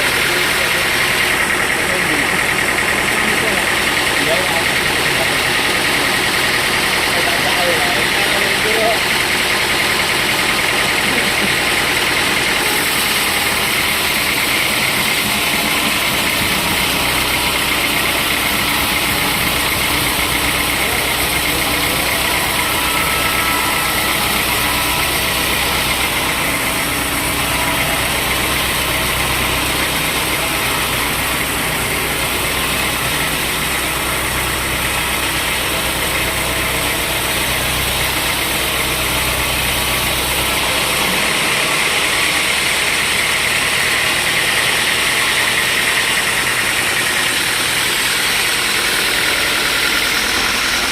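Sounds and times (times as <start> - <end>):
low engine drone: 0.0 - 50.9
sawmill machinery running: 0.0 - 50.9.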